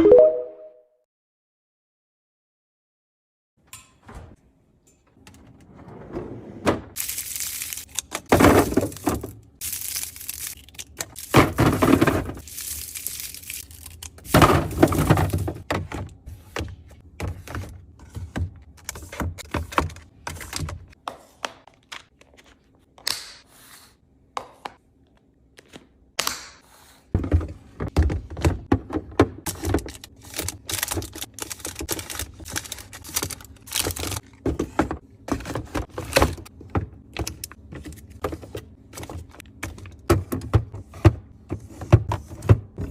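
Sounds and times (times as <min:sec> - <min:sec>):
food containers thunking down: 0:14.3 - 0:16.0.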